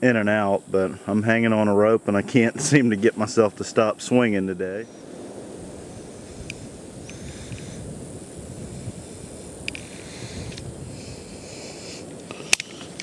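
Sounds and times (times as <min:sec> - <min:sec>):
wind and rustling: 0:00.0 - 0:13.0
sharp click: 0:12.3 - 0:13.0.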